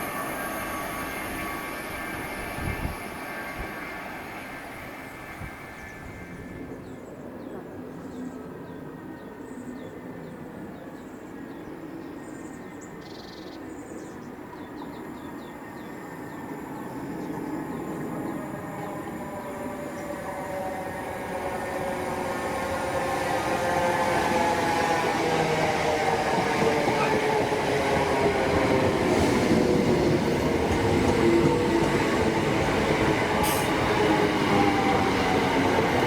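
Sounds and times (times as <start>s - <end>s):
train rumbling: 0.0s - 7.0s, 14.5s - 36.0s.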